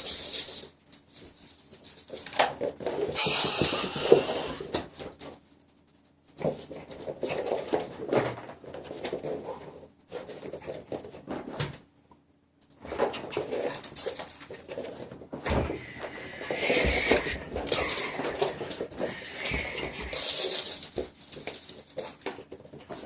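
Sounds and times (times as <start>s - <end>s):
small dog vocalizing: 15.8s - 20.4s.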